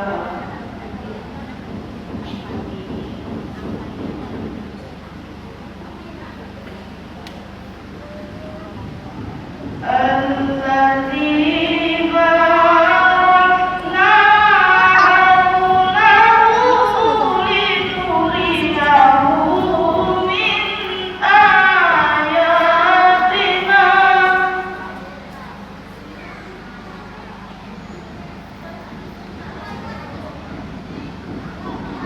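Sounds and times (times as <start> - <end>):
girl chanting melodically: 9.8 - 25.3.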